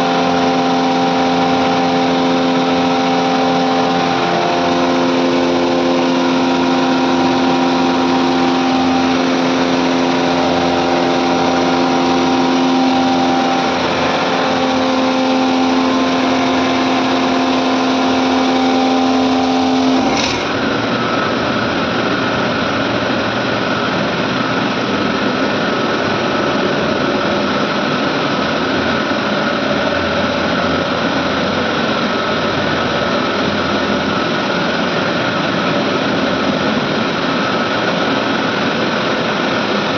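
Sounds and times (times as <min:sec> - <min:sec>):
air compressors humming: 0:00.0 - 0:26.6.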